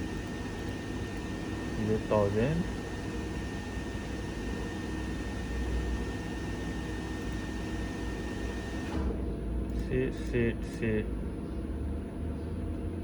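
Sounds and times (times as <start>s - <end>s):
test bench hiss and hum: 0.0s - 8.9s.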